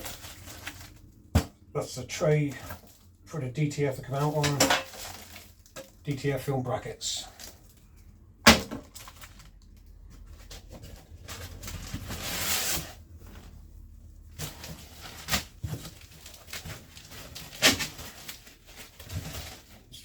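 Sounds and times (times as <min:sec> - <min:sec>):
packaging rustling and scraping: 0:00.0 - 0:01.4, 0:04.2 - 0:06.0, 0:07.3 - 0:20.0.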